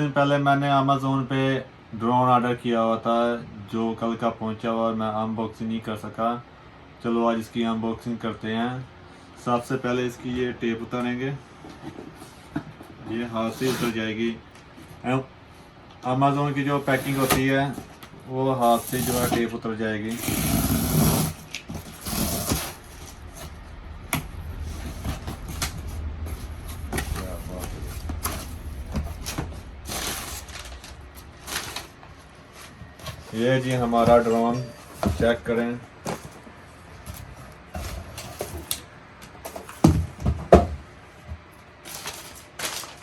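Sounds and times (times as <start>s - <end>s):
low steady hum: 5.2s - 39.8s
packaging rustling and scraping: 11.5s - 15.1s, 16.7s - 38.8s, 41.8s - 43.0s
packing tape ripping off cardboard: 18.6s - 19.4s, 20.1s - 23.2s.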